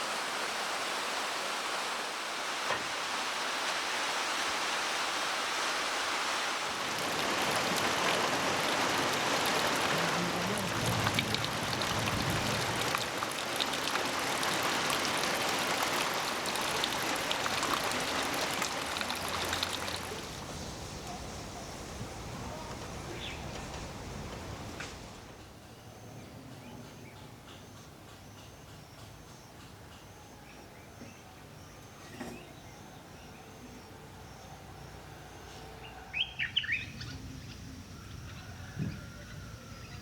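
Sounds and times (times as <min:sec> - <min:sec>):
steady rain falling: 0:00.0 - 0:25.6.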